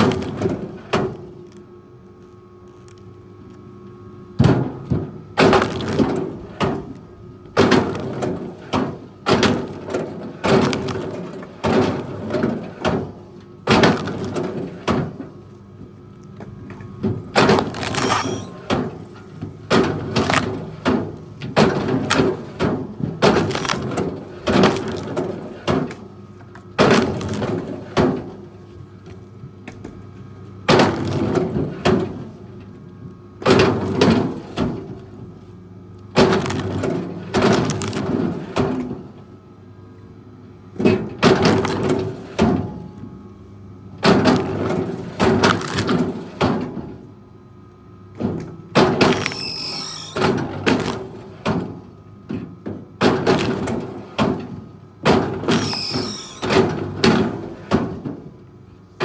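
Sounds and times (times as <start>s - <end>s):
wood cracking and breaking: 5.4s - 6.1s, 17.4s - 18.5s, 19.8s - 20.6s, 23.2s - 25.2s, 36.2s - 36.8s, 37.5s - 38.2s, 45.3s - 46.2s, 49.0s - 49.6s, 50.6s - 51.2s.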